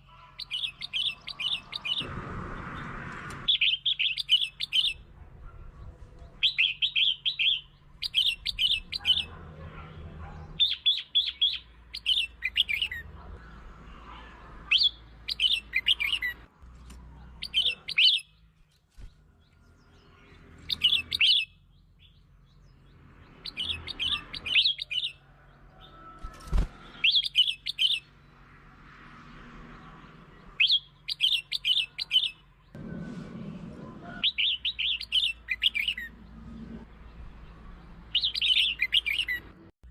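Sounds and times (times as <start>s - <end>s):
bird singing chirpy notes: 2.8s - 5.1s, 6.2s - 9.3s, 10.6s - 13.0s, 14.7s - 16.5s, 26.8s - 28.4s, 30.0s - 32.8s, 34.2s - 39.7s.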